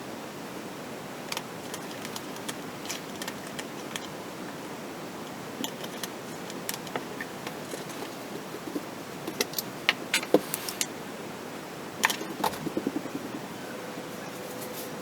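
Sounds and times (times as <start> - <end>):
small hard parts clicking: 1.3 - 4.2, 5.6 - 10.9
steady hiss: 3.6 - 15.0.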